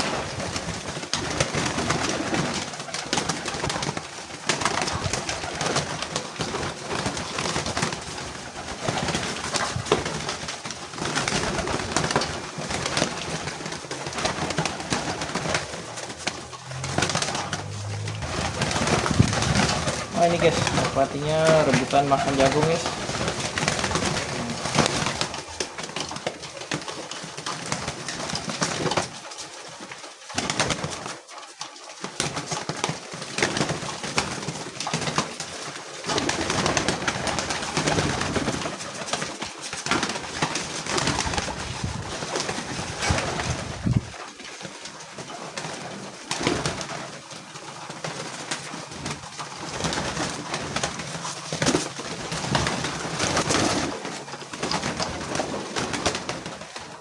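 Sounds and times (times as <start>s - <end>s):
pigeons cooing: 0.0s - 29.2s, 35.6s - 44.2s
clatter of clicks and rustles: 0.0s - 57.0s.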